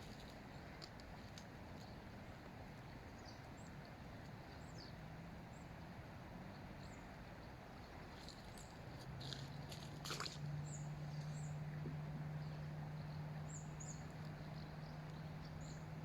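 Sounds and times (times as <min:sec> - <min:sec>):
faint low hum: 0:00.0 - 0:16.0
small birds chirping: 0:02.7 - 0:05.7, 0:06.5 - 0:16.0.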